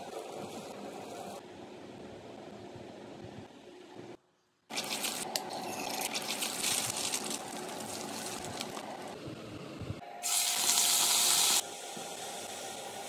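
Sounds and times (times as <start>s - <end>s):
oil sizzling around frying egg: 5.9s - 9.1s, 10.2s - 12.7s
diced meat sizzling: 6.1s - 8.9s.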